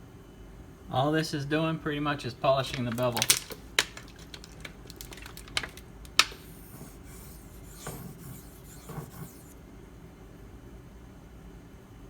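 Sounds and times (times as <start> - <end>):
knife rubbing on sharpening stone: 6.1 - 9.6.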